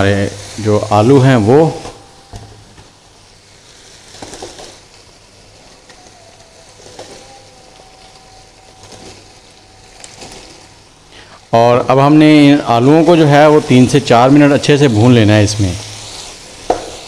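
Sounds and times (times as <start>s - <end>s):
meat sizzling in a wok: 0.0s - 17.0s
potatoes pattering into wok: 1.8s - 7.4s, 13.0s - 17.0s.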